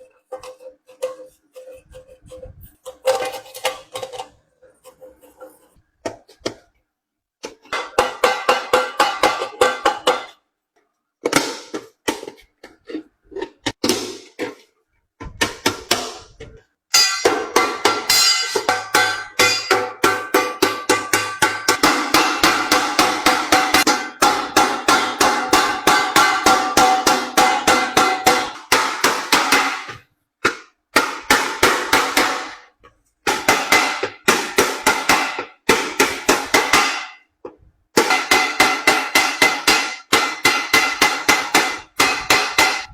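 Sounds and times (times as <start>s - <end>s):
hammer beating sheet metal: 7.7s - 10.4s, 15.3s - 37.3s, 37.9s - 42.9s.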